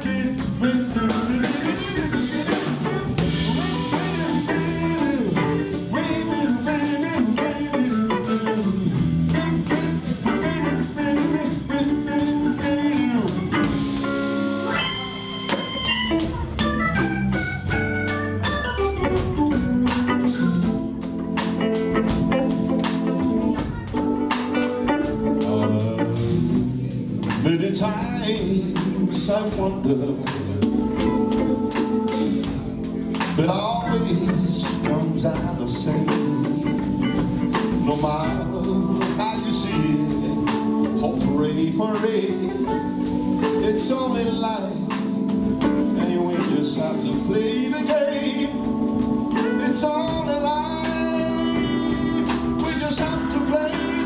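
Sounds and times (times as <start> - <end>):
drums: 0.0 - 54.0
electric guitar: 0.0 - 54.0
organ: 0.0 - 54.0.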